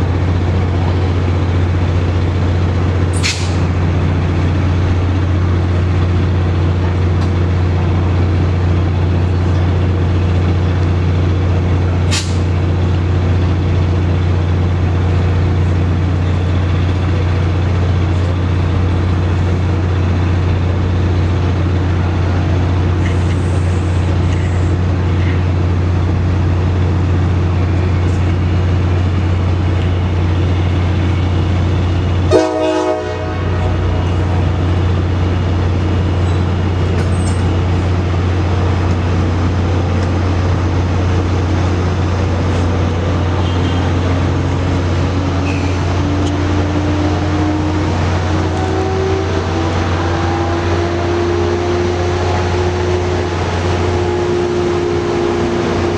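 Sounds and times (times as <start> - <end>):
train rumbling past: 0.0 - 55.9
sharp horn blast: 32.3 - 34.0, 43.4 - 44.0.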